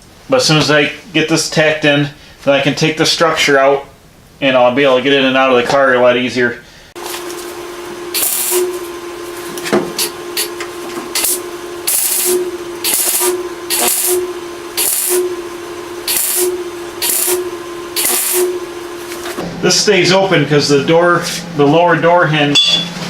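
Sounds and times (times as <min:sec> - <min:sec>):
steady hum: 0:06.9 - 0:23.0
welder hissing bursts: 0:08.1 - 0:08.9, 0:10.0 - 0:19.2.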